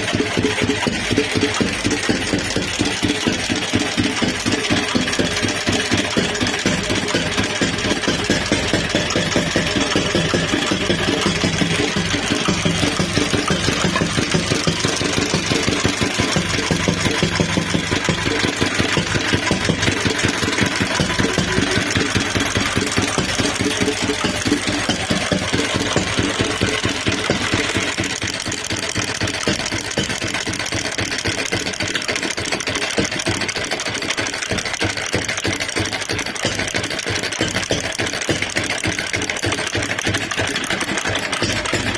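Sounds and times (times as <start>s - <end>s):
engine running with even firing: 0.0s - 41.9s.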